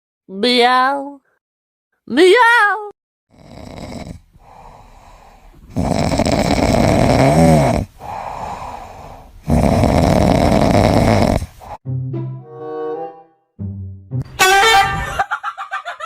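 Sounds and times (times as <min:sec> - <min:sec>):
pet snoring loudly: 0:03.3 - 0:11.8
whistling snore: 0:05.7 - 0:07.9, 0:09.4 - 0:11.5.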